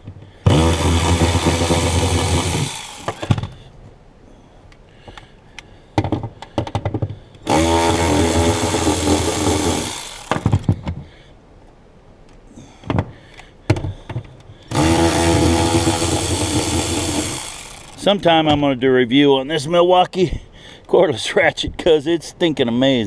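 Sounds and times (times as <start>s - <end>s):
cordless ratchet motor running: 0.5s - 3.5s, 7.5s - 10.8s, 14.7s - 18.2s.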